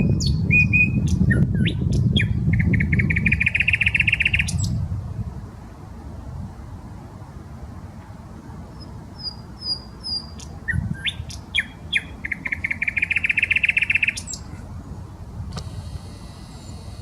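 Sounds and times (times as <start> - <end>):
nightingale singing: 0.0 - 4.8, 8.7 - 14.5.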